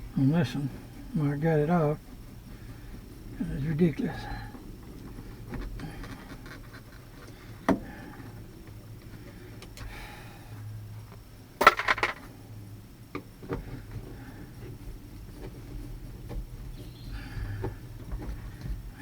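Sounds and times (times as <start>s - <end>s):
small metal tools clattering: 11.6s - 12.3s.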